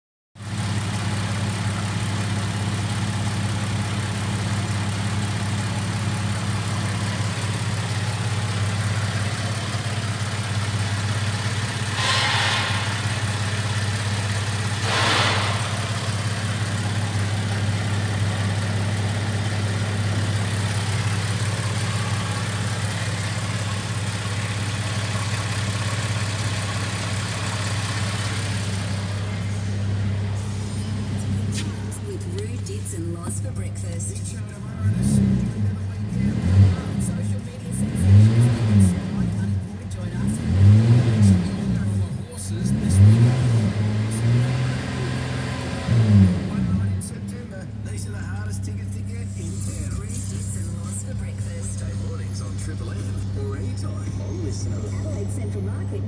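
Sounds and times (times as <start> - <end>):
car engine idling: 0.4 - 56.0
short hisses: 11.7 - 17.0.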